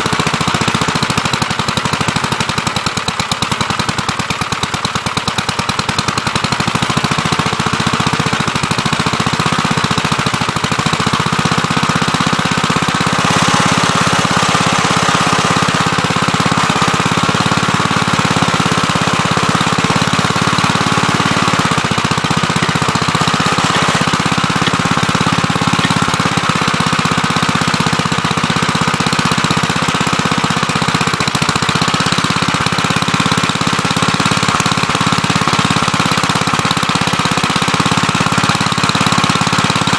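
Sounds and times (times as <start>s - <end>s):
backhoe engine chugging: 0.0s - 39.9s
high engine whine: 13.0s - 27.9s.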